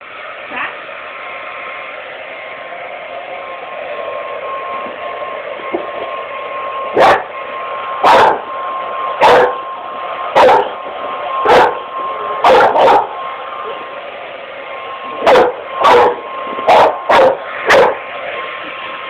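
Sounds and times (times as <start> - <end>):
hair dryer running: 0.0 - 19.0
dog barking: 7.0 - 7.3, 8.0 - 8.5, 9.2 - 9.6, 10.4 - 10.8, 11.4 - 11.8, 12.4 - 13.2, 15.2 - 18.0.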